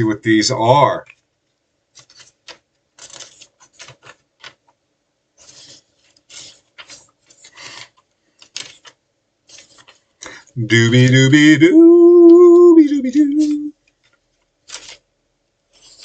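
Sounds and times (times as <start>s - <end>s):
paper and card rustling: 1.9s - 4.8s, 5.4s - 10.4s, 13.0s - 15.1s, 15.7s - 16.0s.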